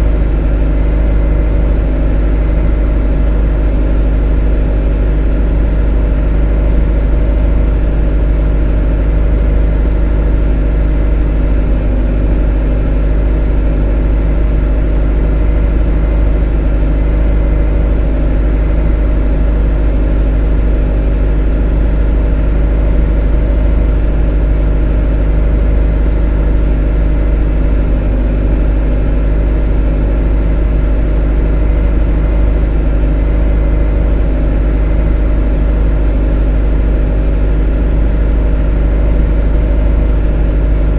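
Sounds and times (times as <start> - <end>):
motor droning steadily: 0.0 - 40.9.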